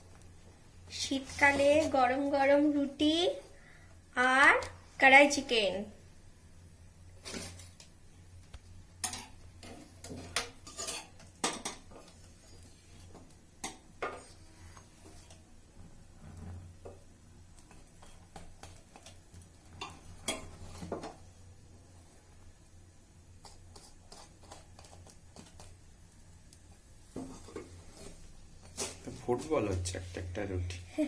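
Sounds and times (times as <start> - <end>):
metal utensils clinking on dishes: 9.0 - 11.9.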